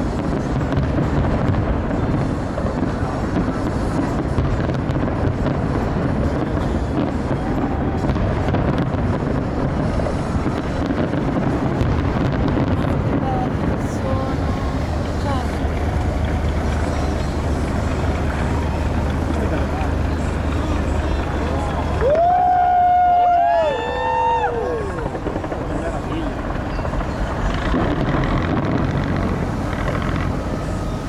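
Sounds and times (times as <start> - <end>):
crowd noise: 0.0 - 31.0
distant fireworks bangs: 0.0 - 31.0
wind on microphone: 0.0 - 31.0.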